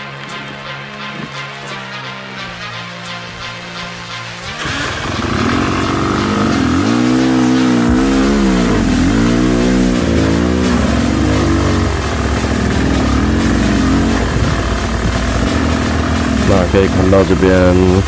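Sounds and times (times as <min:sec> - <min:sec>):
dirt bike engine revving: 0:04.5 - 0:18.0.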